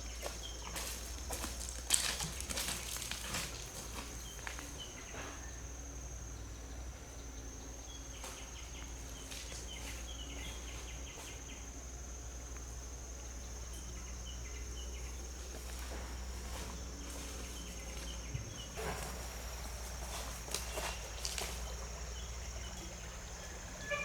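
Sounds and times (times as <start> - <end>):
high-pitched insect drone: 12.9 - 24.0.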